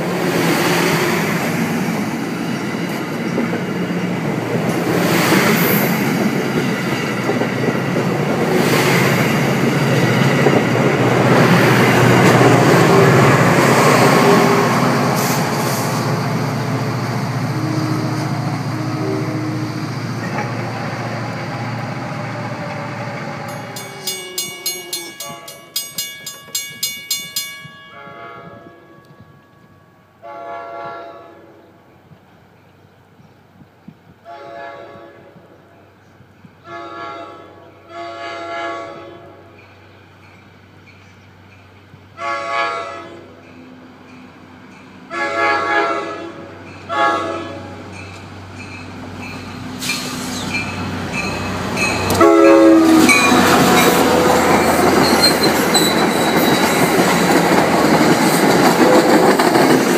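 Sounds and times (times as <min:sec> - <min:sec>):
train wheels rumbling and clattering: 0:00.0 - 0:18.7, 0:19.8 - 0:27.8, 0:39.4 - 0:42.2, 0:43.3 - 0:59.9
crossing bell dinging: 0:23.4 - 0:30.2, 0:50.5 - 0:57.6.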